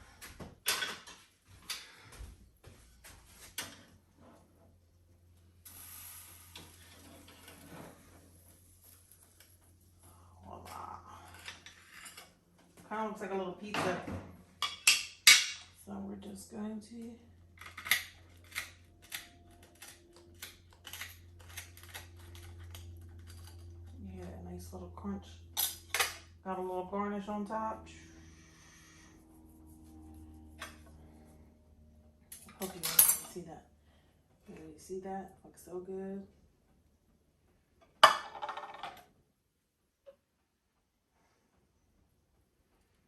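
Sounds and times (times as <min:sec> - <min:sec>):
low steady hum: 0:00.0 - 0:43.0
soft hiss: 0:05.6 - 0:09.7
toasted bread crunching: 0:17.6 - 0:23.9.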